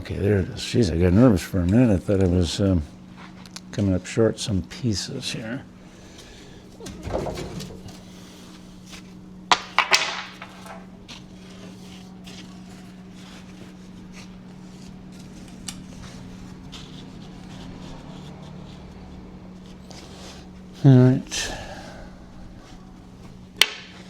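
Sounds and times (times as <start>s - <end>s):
steady low hum: 0.0s - 24.0s
wooden stakes knocking together: 6.8s - 11.3s, 23.6s - 24.0s.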